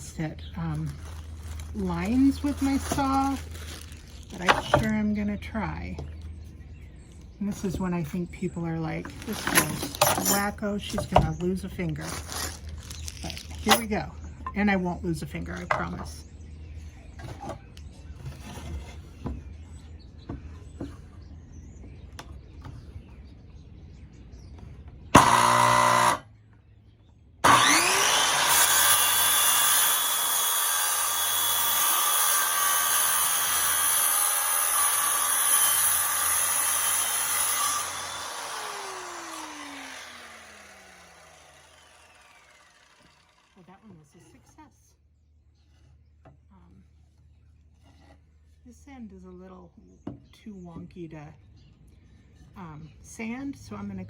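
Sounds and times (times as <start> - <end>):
power saw cutting wood: 0.9 - 5.2, 25.2 - 26.3, 27.4 - 43.9.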